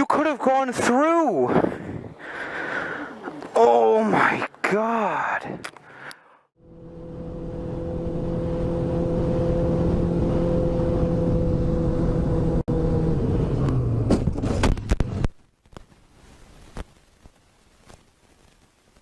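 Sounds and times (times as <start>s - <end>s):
road and wind noise: 0.0s - 15.6s
vehicle engine running: 6.6s - 15.3s.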